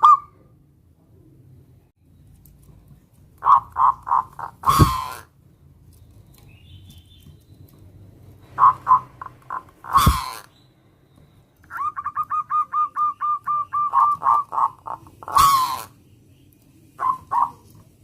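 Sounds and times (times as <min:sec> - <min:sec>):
dove cooing: 0:03.4 - 0:05.3, 0:08.6 - 0:10.5, 0:11.7 - 0:16.0, 0:17.0 - 0:17.8.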